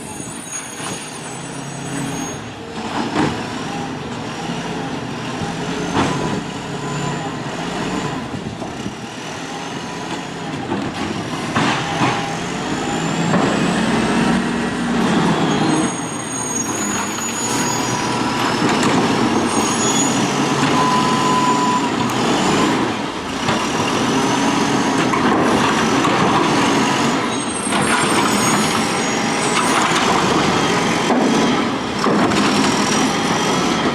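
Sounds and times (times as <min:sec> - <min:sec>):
truck engine revving: 0:02.8 - 0:33.9
hydraulic whines: 0:11.7 - 0:25.2.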